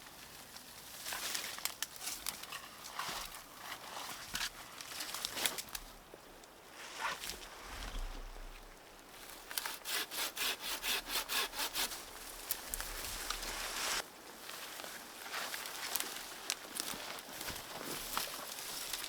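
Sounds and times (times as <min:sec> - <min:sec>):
hand saw cutting wood: 0:09.5 - 0:12.5.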